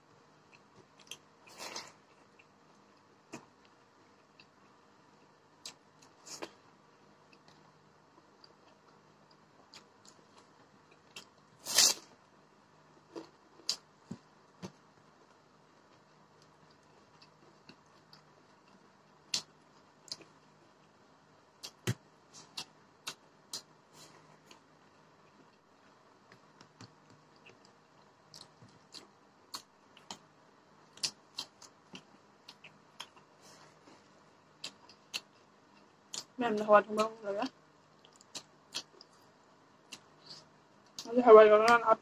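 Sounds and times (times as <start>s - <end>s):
chewing clicks and smacks: 30.9s - 33.3s, 38.0s - 39.2s.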